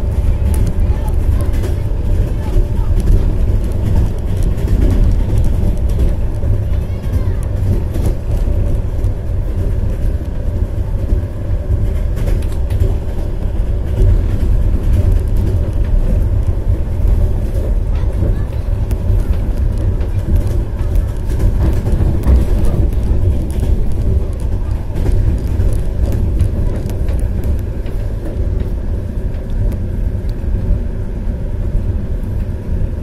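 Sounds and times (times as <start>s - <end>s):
train rumbling on track: 0.0s - 33.0s.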